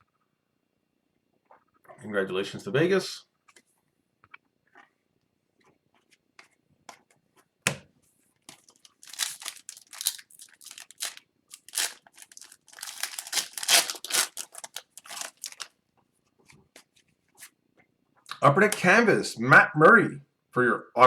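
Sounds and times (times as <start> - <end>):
wrapper tearing and crinkling: 8.6 - 15.7.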